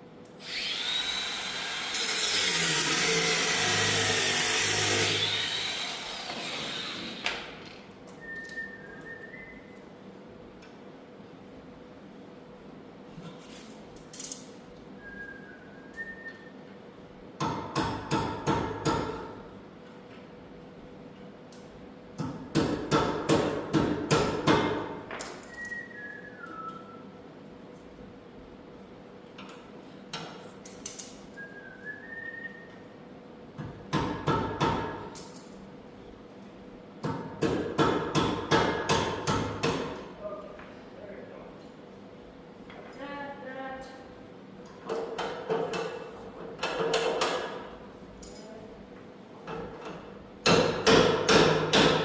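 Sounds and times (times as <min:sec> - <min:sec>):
hammer striking metal: 0:50.4 - 0:52.0.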